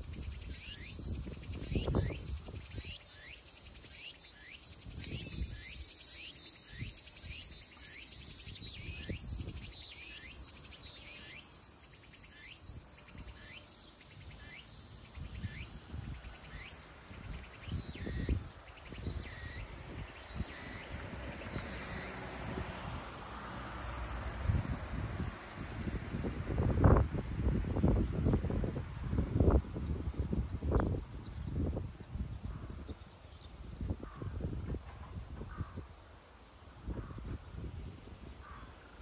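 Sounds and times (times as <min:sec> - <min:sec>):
insects hissing: 0:00.0 - 0:26.2.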